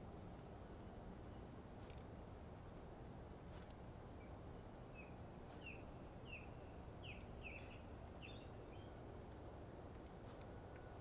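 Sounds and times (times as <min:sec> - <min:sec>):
bird chirping: 0:03.5 - 0:09.2.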